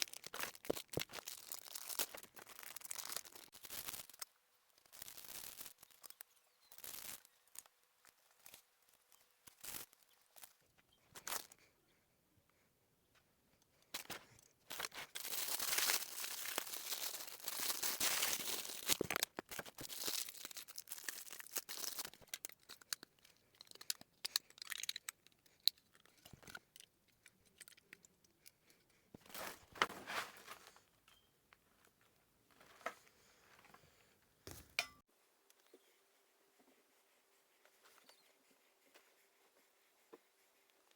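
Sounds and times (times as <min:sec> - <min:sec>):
packaging crinkling and tearing: 0:00.0 - 0:07.7, 0:14.0 - 0:25.2.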